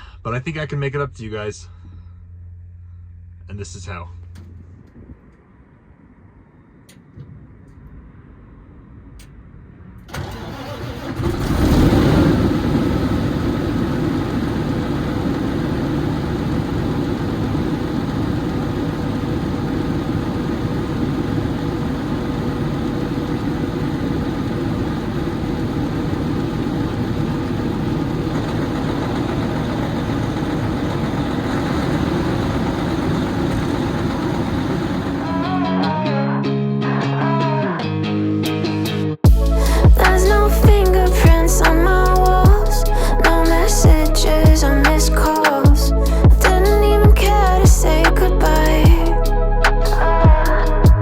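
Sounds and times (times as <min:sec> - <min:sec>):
diesel engine starting and idling: 0:10.0 - 0:36.1, 0:39.3 - 0:51.0.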